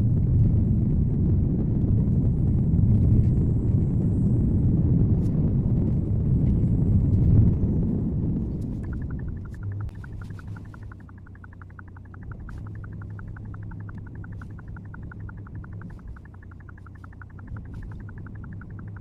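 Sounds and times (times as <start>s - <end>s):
car engine and road hum: 0.0s - 19.0s
rapid high pulses: 8.8s - 19.0s.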